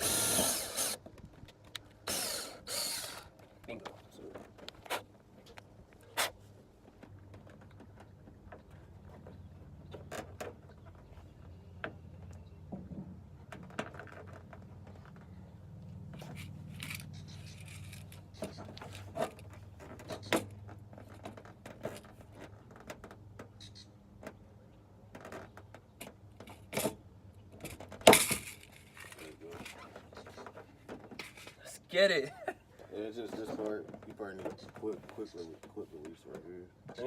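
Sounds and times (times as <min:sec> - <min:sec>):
parts and tools clicking and knocking: 0:16.1 - 0:24.4, 0:25.0 - 0:31.6.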